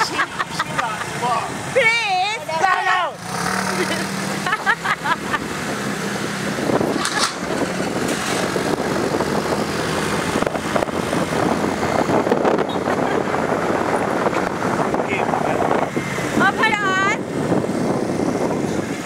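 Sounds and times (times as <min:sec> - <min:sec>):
traffic rushing: 0:00.0 - 0:19.0
wind noise: 0:04.4 - 0:19.0.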